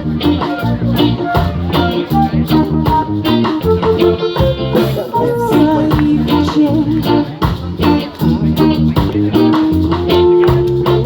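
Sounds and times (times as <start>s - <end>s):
drum beat: 0.0s - 11.0s
guitar and bass: 0.0s - 11.0s
person singing: 4.2s - 8.8s.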